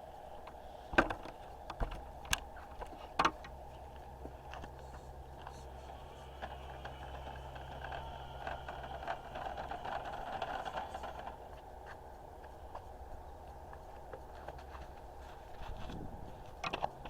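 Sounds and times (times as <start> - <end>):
toy tractor motor whining: 3.4 - 11.6.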